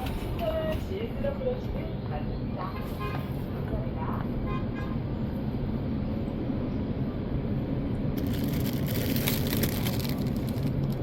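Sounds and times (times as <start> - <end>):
vehicle rumbling on road: 0.0 - 11.0
dense crackling rustle: 8.2 - 11.0.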